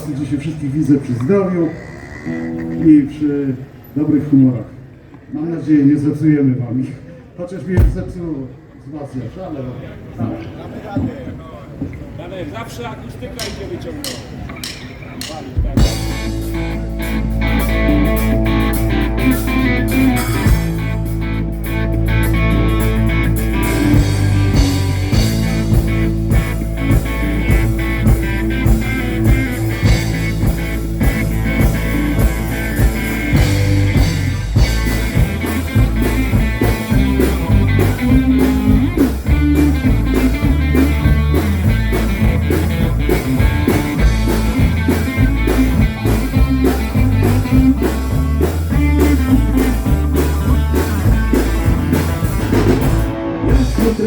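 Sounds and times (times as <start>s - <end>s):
electric guitar: 1.6s - 3.2s, 15.8s - 54.0s
drum kit beat: 13.4s - 54.0s
stepping bass line: 15.8s - 54.0s.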